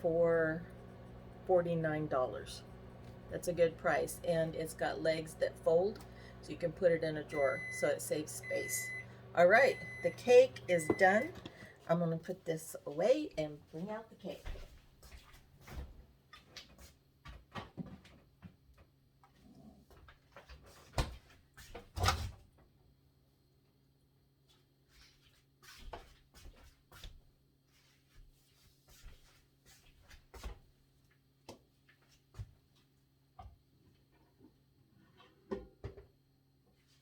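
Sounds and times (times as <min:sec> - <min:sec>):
faint low hum: 0:00.0 - 0:14.4.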